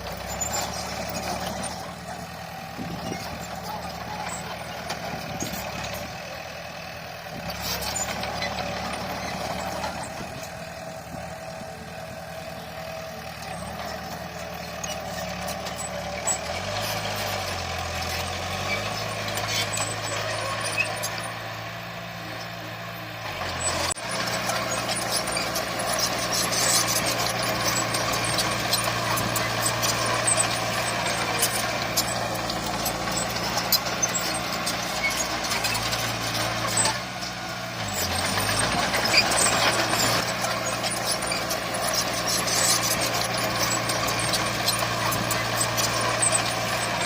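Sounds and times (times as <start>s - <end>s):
heavy machinery diesel engines: 0.0s - 47.0s.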